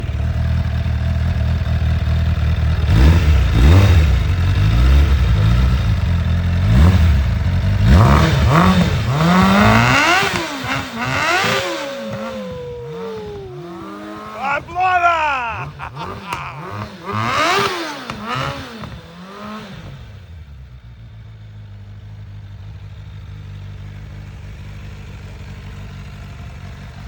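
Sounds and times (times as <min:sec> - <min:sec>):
motorcycle engine revving: 0:00.0 - 0:14.8, 0:15.5 - 0:20.9.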